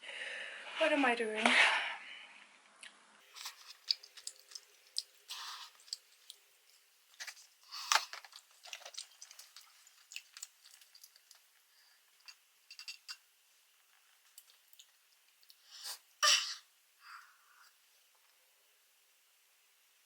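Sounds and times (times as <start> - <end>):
person chewing food: 3.2 - 13.1, 13.8 - 15.7
mouth clicks and smacks: 3.4 - 6.4.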